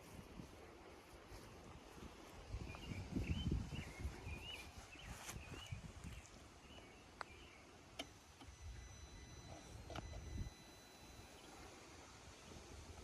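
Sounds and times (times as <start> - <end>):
wind rumble on microphone: 0.0 - 6.5
songbird singing: 1.3 - 13.0.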